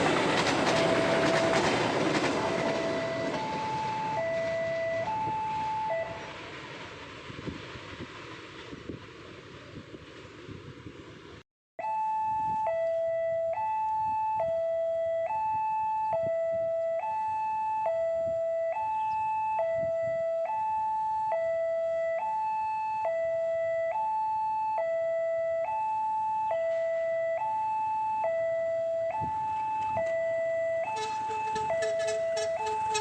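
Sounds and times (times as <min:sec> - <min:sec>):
fast-pulsing alarm tone: 0:00.0 - 0:06.3, 0:27.4 - 0:33.0
two-tone level crossing alarm: 0:00.0 - 0:06.4, 0:11.8 - 0:33.0.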